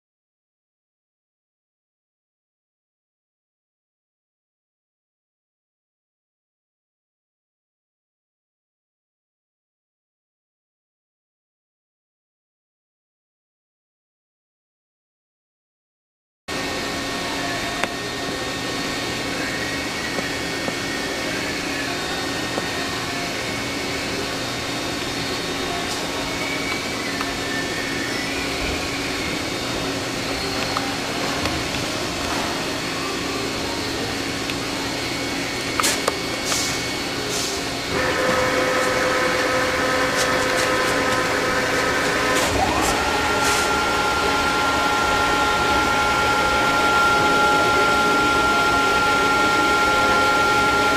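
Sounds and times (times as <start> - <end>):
machining center hum and whine: 16.5 - 50.9
tone gliding up: 37.8 - 50.9.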